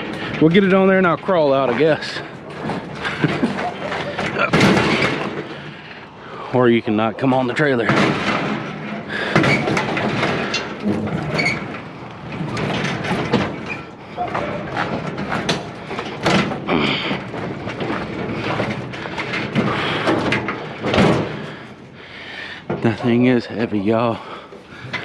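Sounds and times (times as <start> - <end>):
metal clanking and scraping: 0.0 - 25.0.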